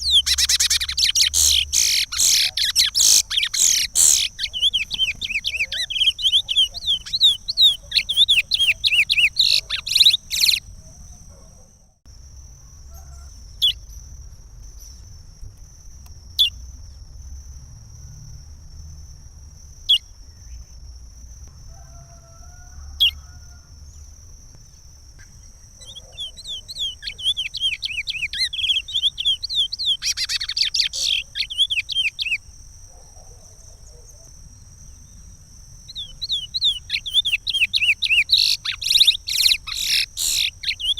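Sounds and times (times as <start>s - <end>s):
finch singing whistled notes: 0.0s - 10.7s, 25.8s - 32.4s, 35.9s - 40.9s.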